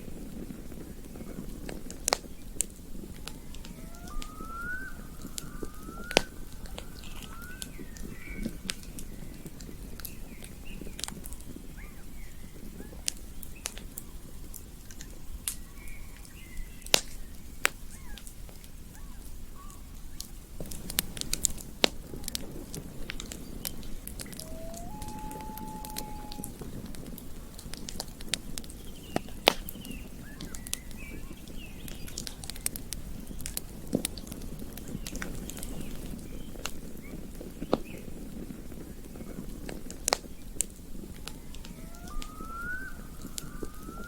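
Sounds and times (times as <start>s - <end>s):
campfire crackling and popping: 0.0s - 44.0s
faint rising chirps: 3.4s - 8.6s, 24.2s - 26.5s, 41.4s - 44.0s.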